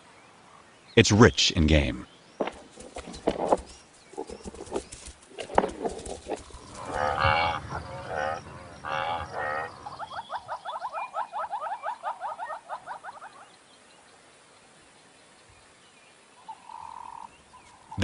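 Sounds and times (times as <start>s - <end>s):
drawn-out animal calls: 4.1s - 13.4s
short rising animal calls: 6.2s - 13.3s.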